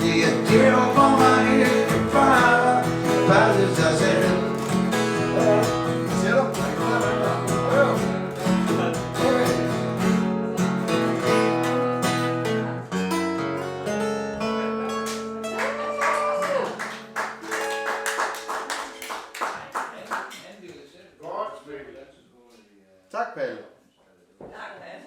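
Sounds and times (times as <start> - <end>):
guitar chords: 0.0 - 19.3
people clapping: 4.2 - 5.6, 15.0 - 20.8.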